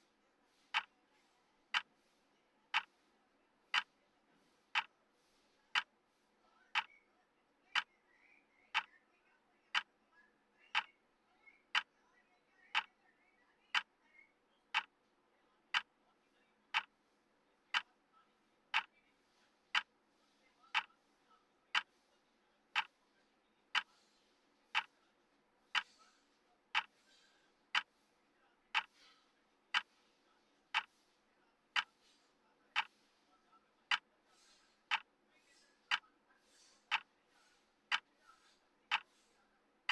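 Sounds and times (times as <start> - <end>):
clock ticking: 0.7 - 0.9, 1.7 - 1.9, 2.7 - 3.0, 3.7 - 4.0, 4.7 - 4.9, 6.7 - 6.9, 10.7 - 10.9, 11.7 - 11.9, 13.7 - 13.9, 14.7 - 14.9, 15.7 - 15.9, 16.7 - 17.0, 18.7 - 18.9, 19.6 - 20.0, 20.7 - 20.9, 21.7 - 22.0, 22.7 - 23.0, 23.7 - 24.0, 24.7 - 25.0, 25.7 - 26.0, 26.7 - 28.0, 28.7 - 30.0, 30.7 - 31.1, 31.7 - 33.1, 33.9 - 35.1, 36.6 - 39.3.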